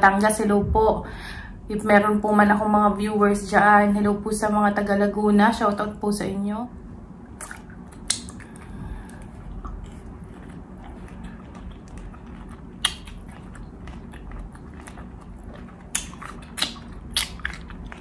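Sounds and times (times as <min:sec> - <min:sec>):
person chewing food: 0:07.3 - 0:18.0.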